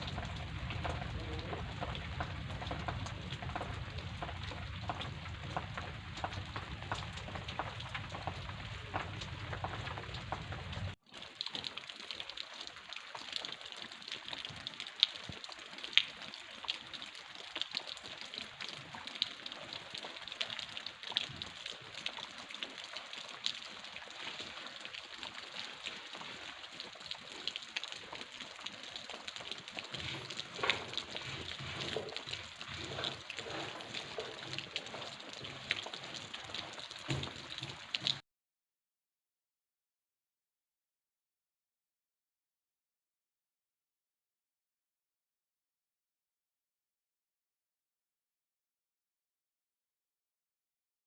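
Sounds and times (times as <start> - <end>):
low rumble: 0.0 - 11.0
heavy rain hitting surfaces: 0.0 - 38.2.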